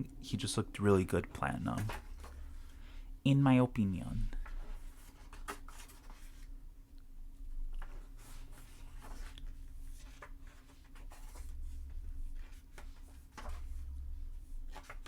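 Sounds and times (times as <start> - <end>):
pages rustling: 1.7 - 2.7, 4.4 - 6.5, 7.7 - 15.0.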